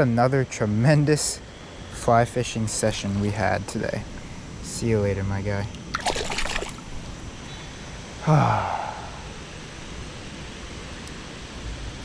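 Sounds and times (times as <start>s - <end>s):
flowing river water: 5.7s - 9.9s
man sighing: 8.2s - 9.5s.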